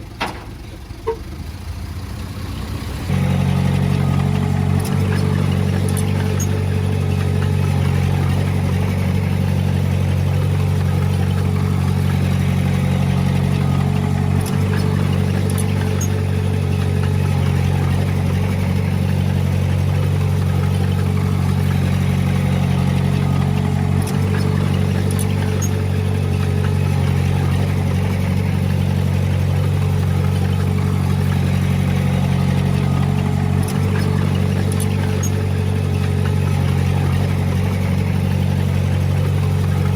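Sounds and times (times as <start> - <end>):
heavy diesel engine droning: 0.0 - 39.9.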